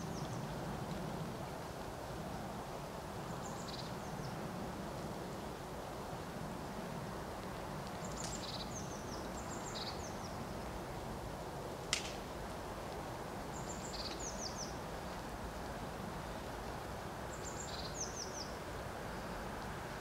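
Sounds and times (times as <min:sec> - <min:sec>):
rural background noise: 0:00.0 - 0:20.0
songbird chirping: 0:08.0 - 0:10.5, 0:13.5 - 0:14.8, 0:17.3 - 0:19.4.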